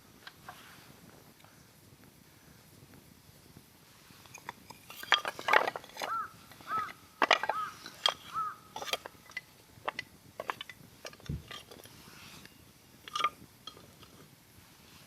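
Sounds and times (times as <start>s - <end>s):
crow cawing: 6.0s - 8.8s.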